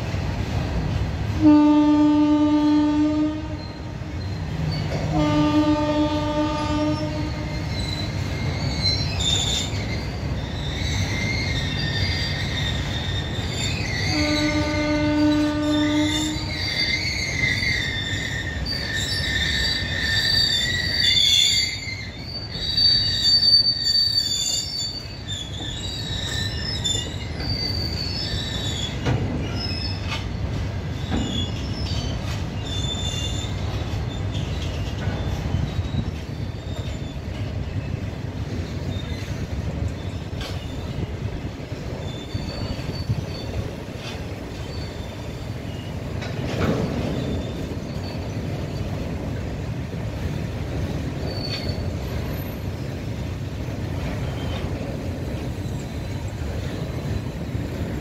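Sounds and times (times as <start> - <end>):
train wheels rumbling on rails: 0.0 - 58.0
high-pitched wheel squeal: 6.6 - 37.2, 41.9 - 46.0, 51.2 - 52.6.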